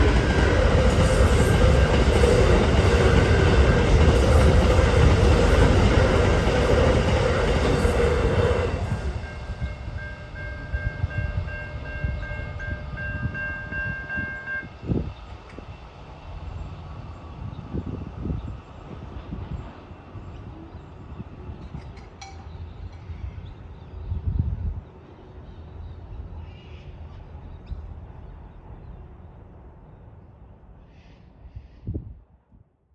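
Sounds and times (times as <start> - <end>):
train passing: 0.0 - 31.8
electronic crossing bells ringing: 8.9 - 14.8.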